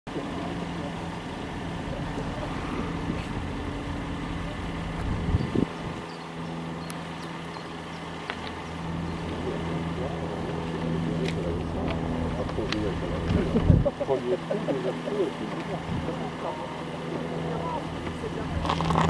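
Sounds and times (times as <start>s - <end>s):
suv engine running low: 0.1s - 19.0s.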